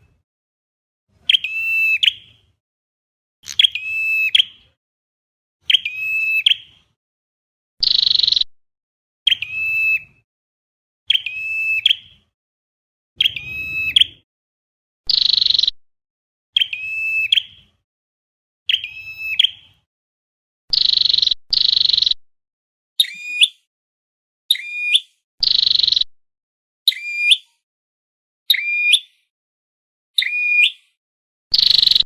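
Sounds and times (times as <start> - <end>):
bird calls ringing and buzzy: 1.2 - 2.5, 3.4 - 4.7, 5.6 - 6.8, 7.8 - 8.5, 9.2 - 10.2, 11.1 - 12.3, 13.2 - 14.3, 15.1 - 15.8, 16.6 - 17.8, 18.7 - 19.9, 20.7 - 22.2, 23.0 - 23.7, 24.5 - 26.1, 26.9 - 27.6, 28.5 - 29.3, 30.2 - 32.0.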